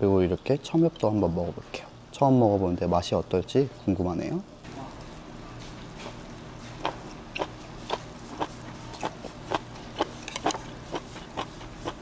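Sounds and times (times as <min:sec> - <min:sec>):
crunchy chewing: 0:06.0 - 0:12.0.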